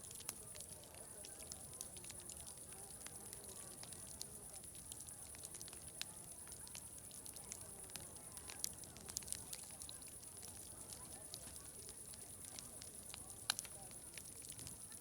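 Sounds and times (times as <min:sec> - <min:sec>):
distant crowd chatter: 0:00.0 - 0:15.0
wood fire crackling: 0:00.0 - 0:15.0.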